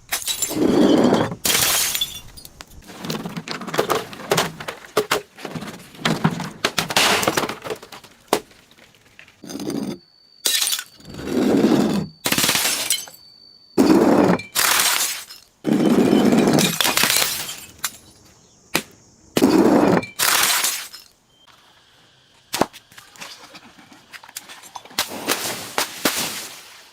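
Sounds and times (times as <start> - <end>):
glass crunching and breaking: 0.1 - 5.0, 6.6 - 11.2, 12.2 - 13.2, 13.8 - 18.2, 20.0 - 21.1.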